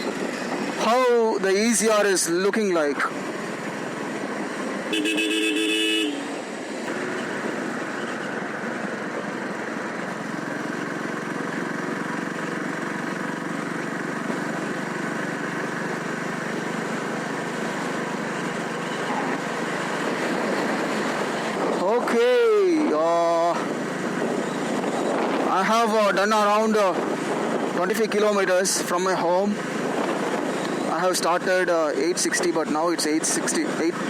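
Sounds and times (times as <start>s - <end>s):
motorcycle wind and road noise: 0.0s - 34.0s
two-tone vehicle horn blast: 4.9s - 6.3s.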